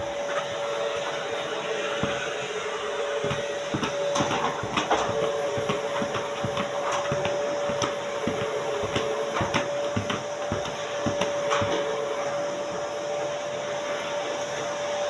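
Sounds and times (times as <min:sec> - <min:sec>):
vacuum cleaner whining: 0:00.0 - 0:15.0
irregular knocks and taps: 0:01.9 - 0:12.4.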